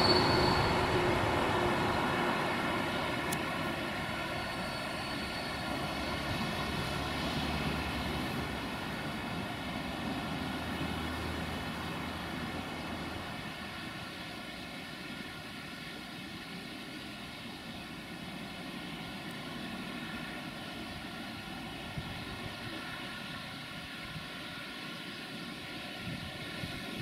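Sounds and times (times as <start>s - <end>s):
freight train wagons rumbling: 0.0s - 13.9s.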